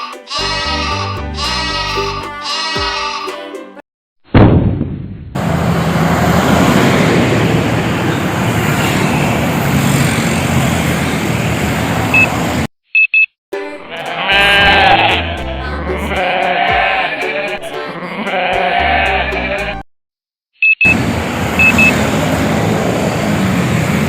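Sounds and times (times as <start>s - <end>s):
music with goat-like bleating: 0.0s - 3.8s, 13.6s - 19.8s
highway traffic rushing: 5.4s - 12.7s, 20.9s - 24.0s
short beeps: 21.6s - 21.9s.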